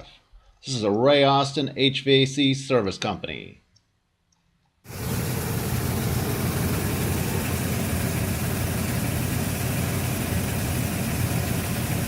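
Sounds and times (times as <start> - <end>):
furnace blower rumbling: 4.9 - 12.0.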